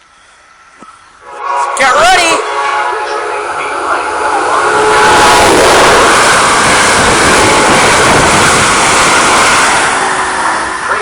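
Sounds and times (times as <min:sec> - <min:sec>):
train passing at high speed: 0:00.0 - 0:11.0.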